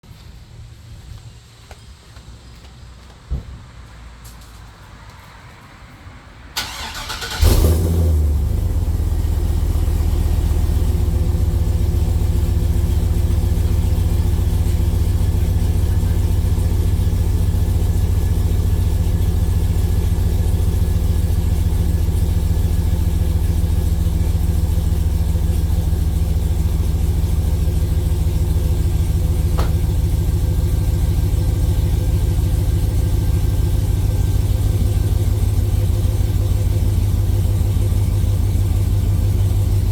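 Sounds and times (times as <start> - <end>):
truck engine starting and idling: 6.5 - 39.9.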